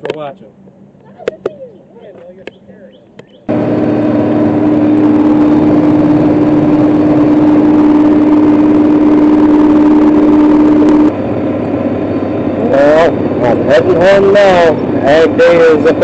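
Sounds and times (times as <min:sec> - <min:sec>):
tractor diesel engine running: 0:03.1 - 0:16.0
high whine: 0:03.4 - 0:16.0.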